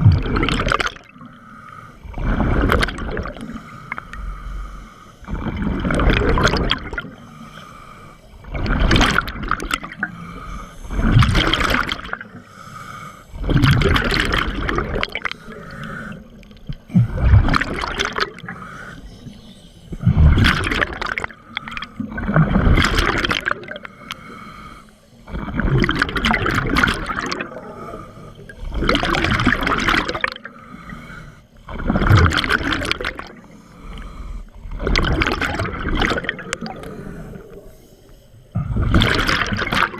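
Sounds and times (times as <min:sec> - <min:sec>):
bubbling regulator exhalations: 0:00.0 - 0:01.1, 0:02.0 - 0:03.6, 0:05.3 - 0:07.2, 0:13.3 - 0:15.8, 0:16.5 - 0:18.5, 0:20.0 - 0:23.9, 0:25.2 - 0:27.8, 0:28.4 - 0:30.5, 0:34.6 - 0:37.5, 0:38.5 - 0:39.9
diver breathing in: 0:01.0 - 0:26.3, 0:27.2 - 0:35.0, 0:36.0 - 0:39.2.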